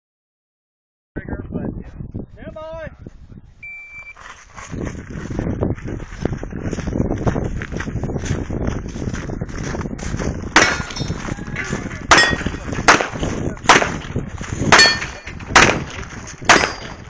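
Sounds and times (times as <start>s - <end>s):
pistol shots: 12.1s - 14.0s, 14.7s - 17.0s.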